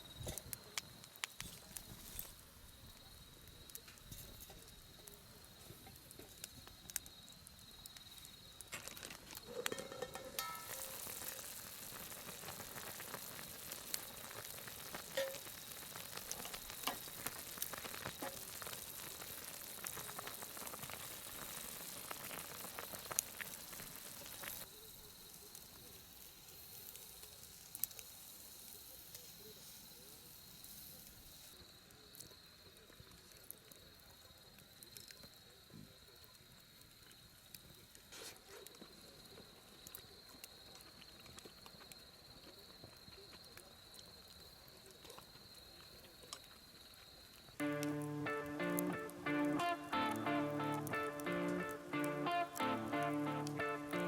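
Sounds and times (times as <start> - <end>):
sizzling hiss: 0.0 - 33.5, 46.2 - 54.0
campfire crackling and popping: 0.0 - 35.4, 36.1 - 54.0.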